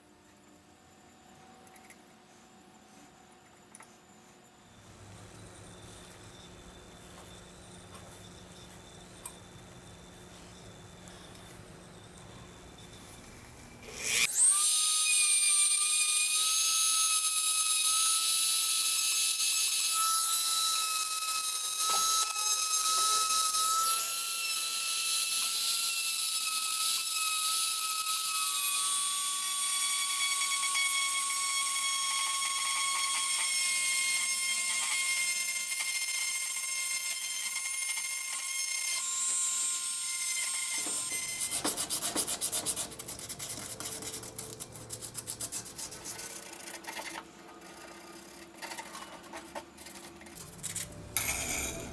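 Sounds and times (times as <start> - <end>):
power tool high whine: 5.0 - 41.5.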